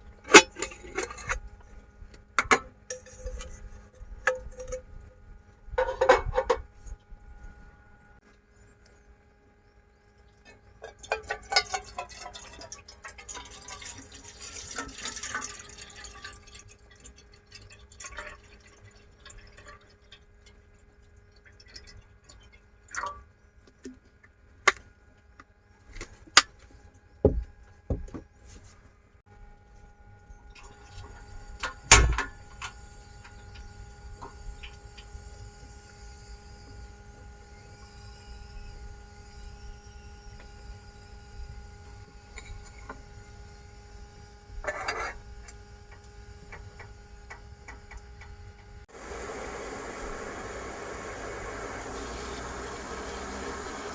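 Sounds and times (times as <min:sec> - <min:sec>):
liquid pouring and dripping: 0:10.8 - 0:23.3.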